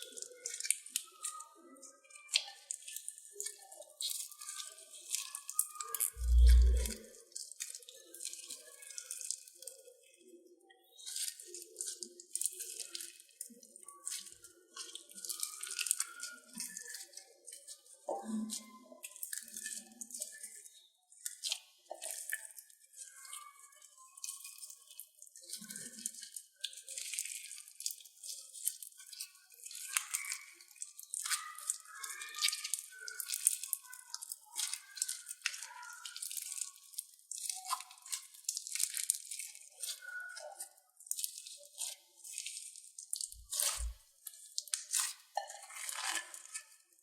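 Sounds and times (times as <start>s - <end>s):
slime squelches: 0.0s - 10.2s, 10.8s - 17.1s, 17.7s - 46.8s
slime crackling and popping: 6.2s - 7.0s, 43.2s - 46.6s.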